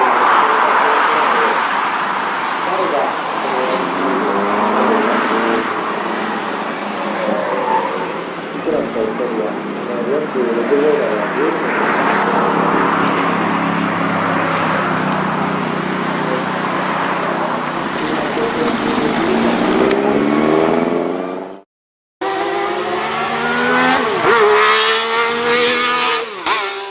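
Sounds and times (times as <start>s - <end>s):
car engine revving: 3.0s - 9.1s, 15.2s - 21.6s, 22.2s - 26.9s.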